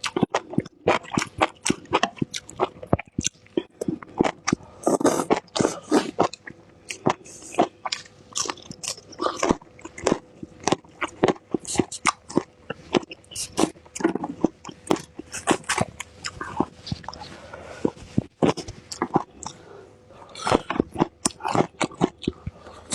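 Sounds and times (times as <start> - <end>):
crunchy chewing and biting: 0.0 - 22.9.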